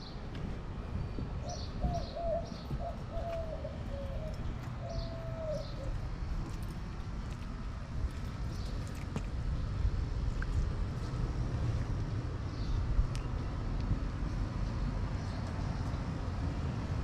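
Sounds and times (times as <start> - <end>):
steady low rumble: 0.0 - 17.0
dove cooing: 1.4 - 6.0.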